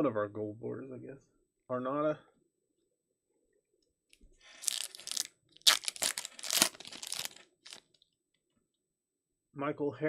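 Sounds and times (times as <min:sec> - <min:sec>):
wrapper tearing and crinkling: 0:04.5 - 0:08.0.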